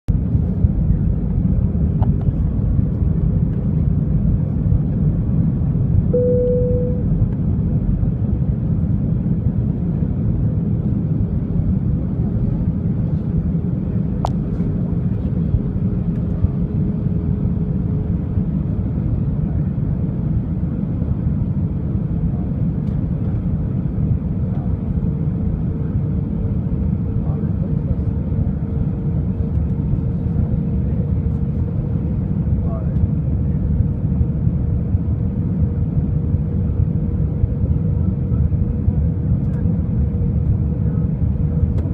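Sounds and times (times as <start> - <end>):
airliner cabin engine rumble: 0.1 - 41.9
short cabin tone: 6.1 - 7.2
faint steady hum: 6.1 - 7.3.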